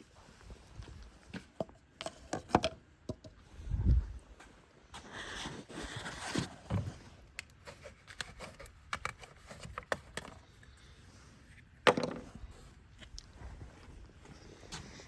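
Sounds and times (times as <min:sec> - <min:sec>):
rustling and scraping of tools: 0:03.3 - 0:15.0.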